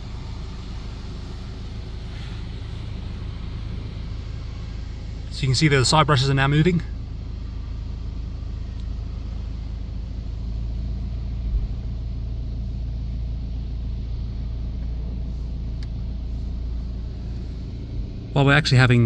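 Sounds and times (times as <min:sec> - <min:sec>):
low rumble inside car wash: 0:00.0 - 0:19.0.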